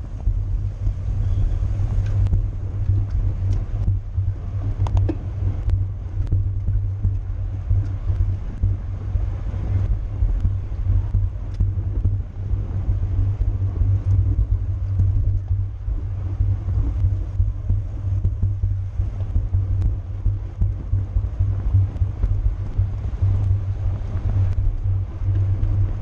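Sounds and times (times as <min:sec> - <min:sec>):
wind and road rumble: 0:00.0 - 0:26.0
faint clicks: 0:01.9 - 0:04.0, 0:04.6 - 0:08.8, 0:10.4 - 0:12.1, 0:16.8 - 0:26.0.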